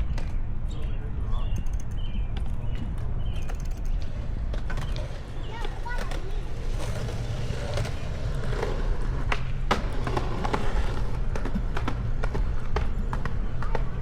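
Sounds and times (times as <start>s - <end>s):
clicks and rattles: 1.5s - 2.0s, 2.9s - 4.1s
bicycle tyres rolling over pavement: 2.5s - 14.0s.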